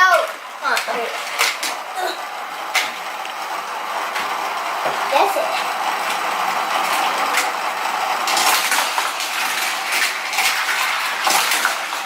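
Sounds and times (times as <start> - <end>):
mechanical whirr of spinning wheel: 0.0 - 12.0
toy cars clattering on plastic track: 0.0 - 12.0.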